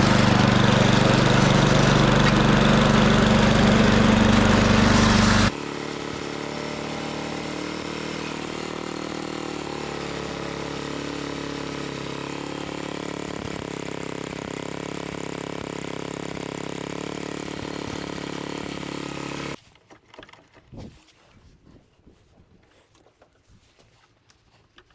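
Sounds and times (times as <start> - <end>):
snowblower engine running: 0.0 - 19.6.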